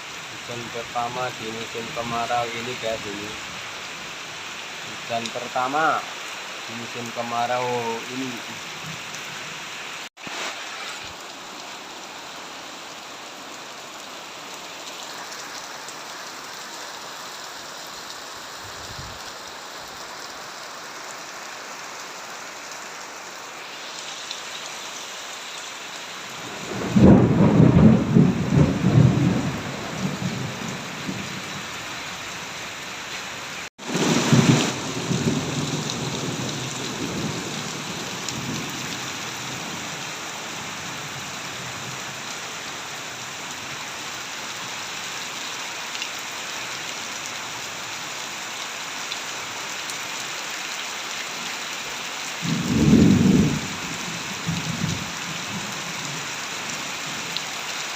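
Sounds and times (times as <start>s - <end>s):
steady rain: 0.0s - 57.9s
thunder rumbling: 26.5s - 31.3s, 52.4s - 53.8s.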